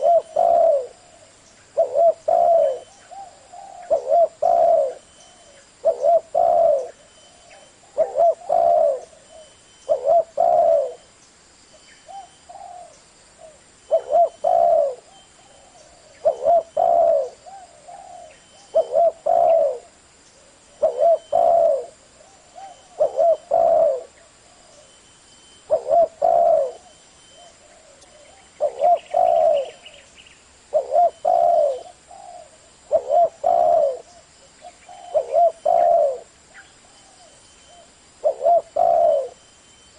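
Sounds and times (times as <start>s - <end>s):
dove cooing: 0.0s - 11.1s, 12.0s - 25.0s, 25.6s - 39.4s.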